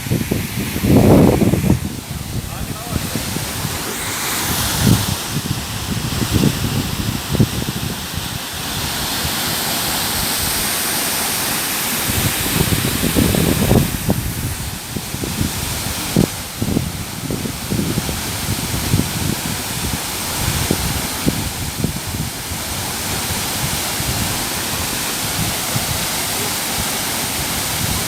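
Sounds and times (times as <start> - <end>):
wind buffeting microphone: 0.0 - 10.9, 11.8 - 28.0
waterfall rushing: 0.0 - 28.0.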